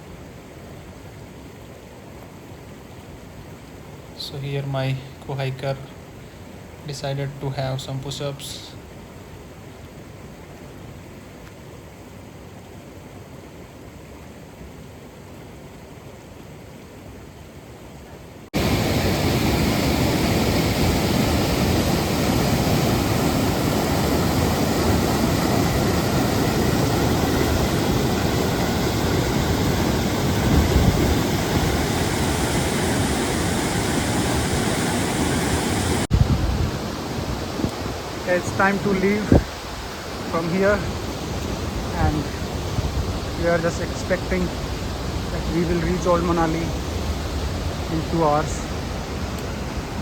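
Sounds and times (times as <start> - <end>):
waterfall rushing: 18.6 - 50.0.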